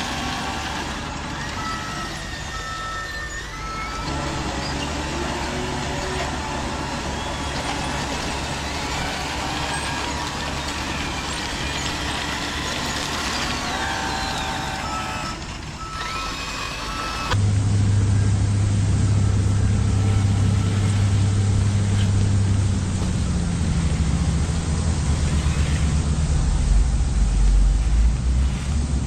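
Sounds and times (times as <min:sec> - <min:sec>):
small motors whining: 0:00.0 - 0:17.4, 0:18.8 - 0:29.0
steady mechanical noise: 0:00.0 - 0:29.0
loud steady low hum: 0:15.8 - 0:29.0.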